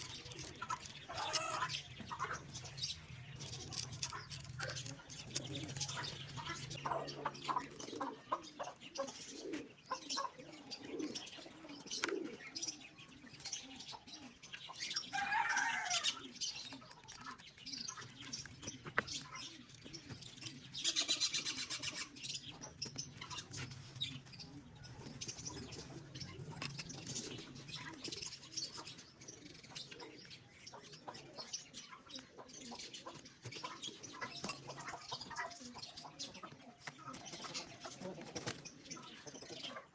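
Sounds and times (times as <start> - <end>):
pigeons scuffling: 0.0 - 1.8, 3.4 - 6.5, 36.4 - 39.0
pigeons cooing: 0.0 - 39.9.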